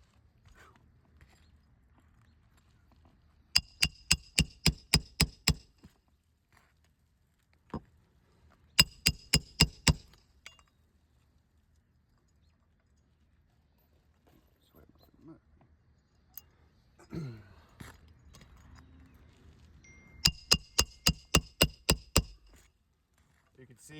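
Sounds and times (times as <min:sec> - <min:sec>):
hammer striking metal: 0:03.6 - 0:05.7, 0:08.8 - 0:10.6, 0:20.3 - 0:22.6.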